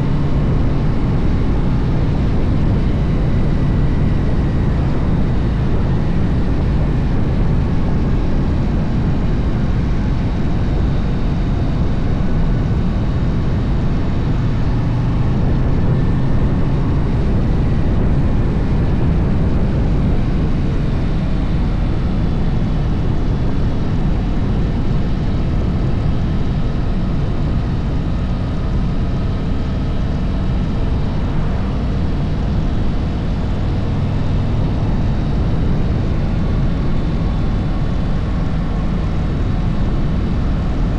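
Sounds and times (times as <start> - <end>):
motorcycle engine rumbling: 0.0 - 27.1
faint whine: 0.0 - 40.9.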